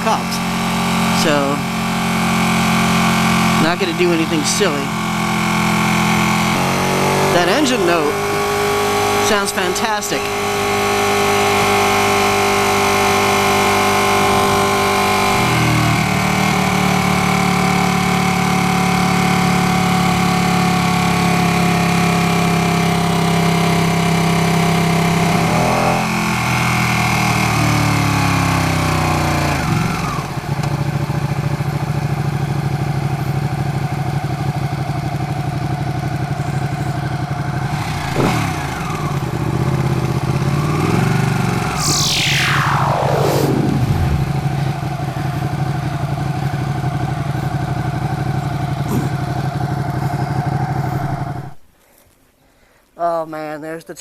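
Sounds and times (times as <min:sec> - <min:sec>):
motorcycle engine and exhaust: 0:00.0 - 0:51.4.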